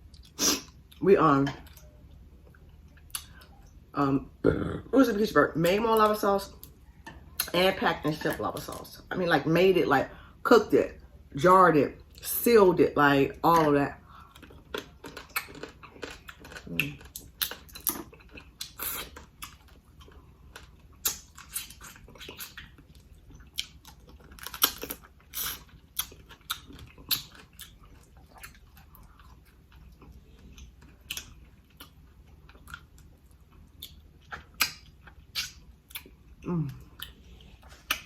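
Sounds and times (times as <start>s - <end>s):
wet chewing and lip smacking: 14.2s - 38.0s.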